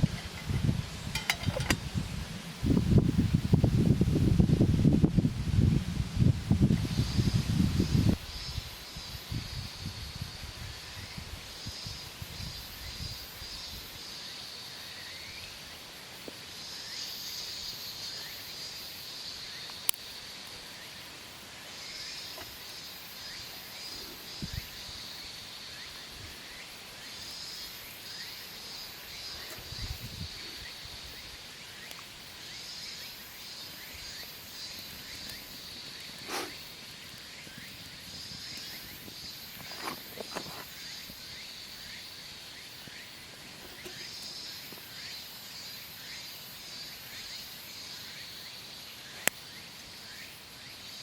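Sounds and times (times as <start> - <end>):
insects chirping: 0.0 - 51.0.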